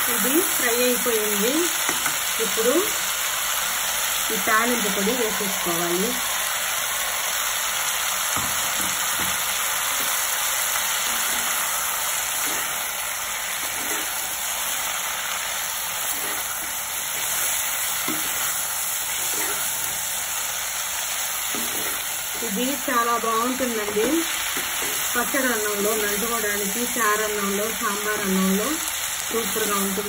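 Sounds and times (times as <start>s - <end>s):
beans sizzling in oil: 0.0s - 30.0s
metal spatula stirring: 10.8s - 14.8s, 15.8s - 20.1s, 21.4s - 22.5s.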